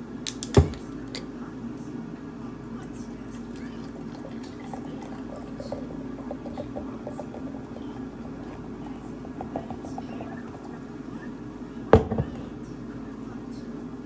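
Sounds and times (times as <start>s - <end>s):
steady low hum: 0.1s - 14.0s.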